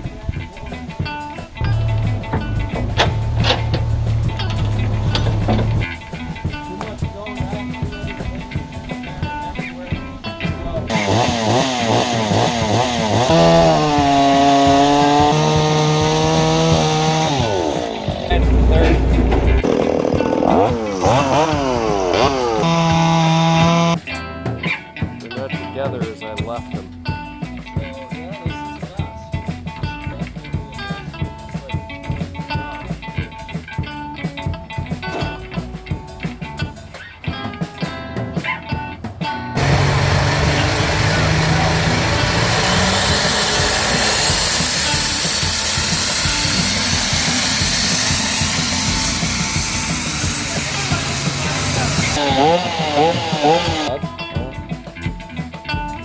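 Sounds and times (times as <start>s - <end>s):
plucked string music: 0.0s - 56.0s
chainsaw engine revving: 1.8s - 6.0s, 10.9s - 24.0s, 39.6s - 54.0s.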